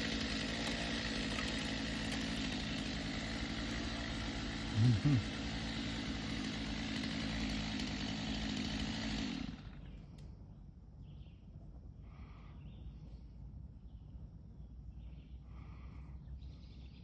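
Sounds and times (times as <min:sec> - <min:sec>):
chainsaw running: 0:00.0 - 0:10.0
faint bird calls: 0:11.0 - 0:17.0.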